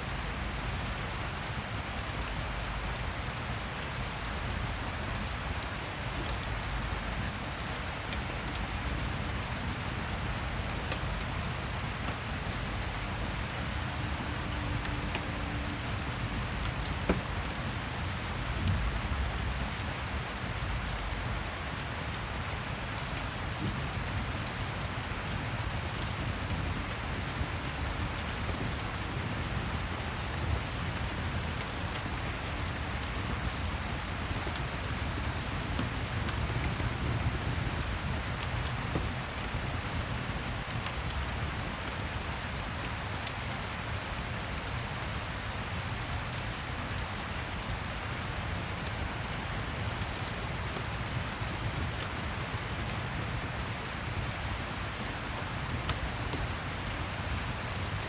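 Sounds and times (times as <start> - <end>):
fireplace crackling and popping: 0.0 - 58.0
steady rain hiss: 0.0 - 58.0.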